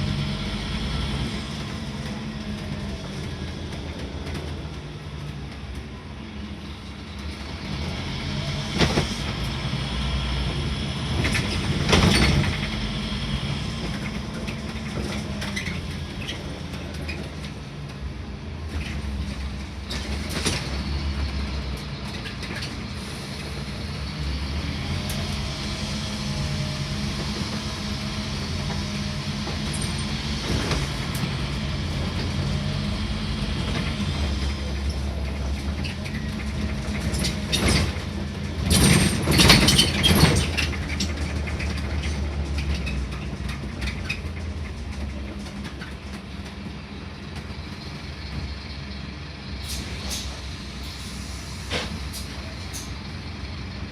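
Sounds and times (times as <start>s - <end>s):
bus diesel engine droning: 0.0s - 53.9s
bus body knocks and rattles: 8.6s - 9.4s, 11.1s - 12.9s, 13.7s - 18.0s, 28.6s - 32.7s, 33.4s - 48.6s.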